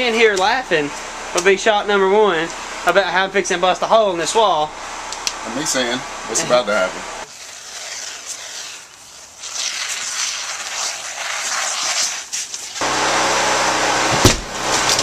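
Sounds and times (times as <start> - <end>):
heavy thump: 14.1 - 14.6.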